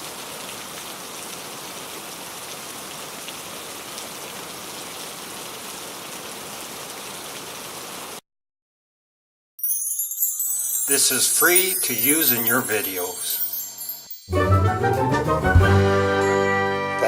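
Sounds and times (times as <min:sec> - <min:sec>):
heavy rain falling: 0:00.0 - 0:08.2.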